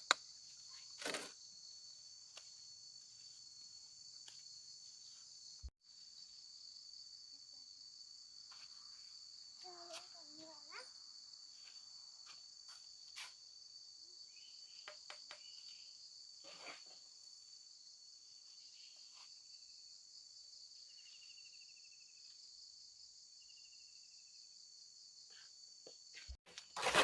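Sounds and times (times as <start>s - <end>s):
shrill insect chorus: 10.7s - 25.2s.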